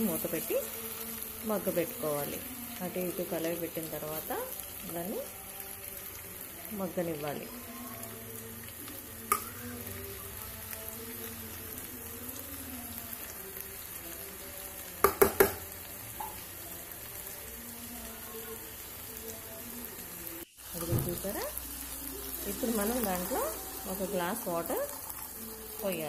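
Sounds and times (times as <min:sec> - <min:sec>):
curry sizzling in a pan: 0:00.0 - 0:26.0
spoon knocking against pan: 0:15.0 - 0:15.6.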